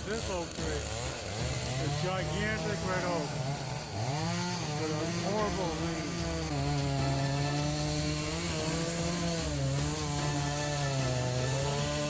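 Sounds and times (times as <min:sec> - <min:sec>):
chainsaw cutting at full throttle: 0:00.0 - 0:12.0.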